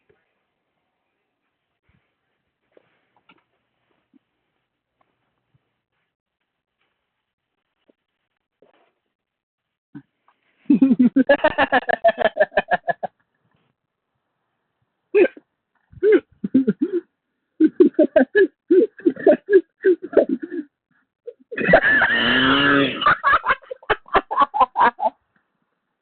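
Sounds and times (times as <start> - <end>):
distorted man laughing: 10.7 - 13.1, 17.6 - 20.6, 21.3 - 25.1.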